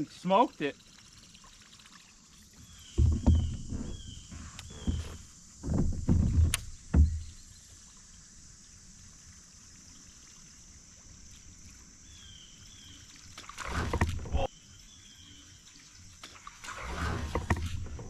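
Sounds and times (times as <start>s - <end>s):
water splashing: 0.0s - 7.9s, 12.9s - 14.5s
hollow knocks on kayak: 2.9s - 7.4s.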